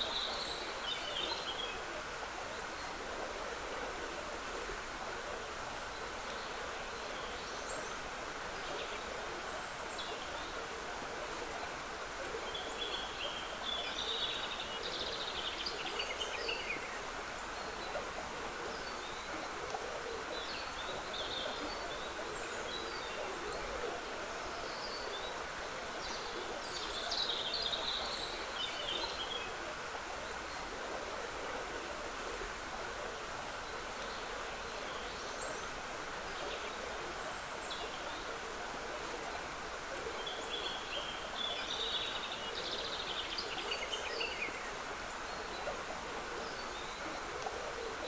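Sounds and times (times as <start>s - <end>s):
stream trickling: 0.0s - 48.0s.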